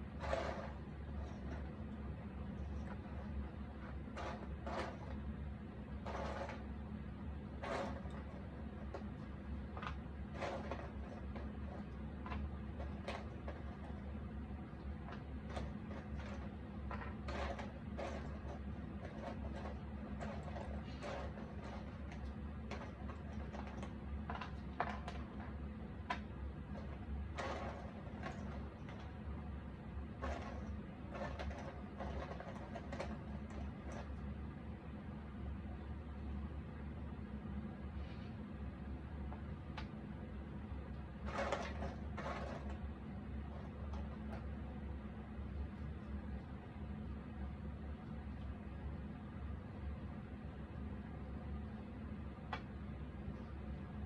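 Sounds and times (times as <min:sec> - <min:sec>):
low room hum: 0:00.0 - 0:54.0
puzzle pieces scraping and clicking: 0:00.1 - 0:01.7, 0:02.6 - 0:05.2, 0:06.0 - 0:06.7, 0:07.6 - 0:09.1, 0:09.7 - 0:14.1, 0:15.0 - 0:29.2, 0:30.1 - 0:34.2, 0:41.2 - 0:42.8.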